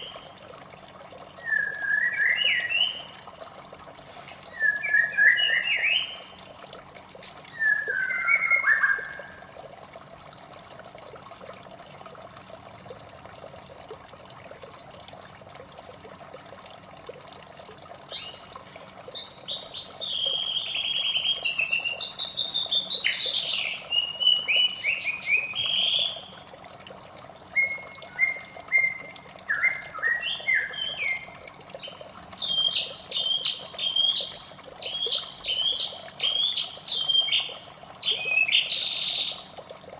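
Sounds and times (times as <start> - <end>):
trickle of running water: 0.0 - 39.9
bird singing: 1.4 - 3.1, 4.3 - 6.3, 7.5 - 9.4, 19.2 - 26.3, 27.6 - 39.4.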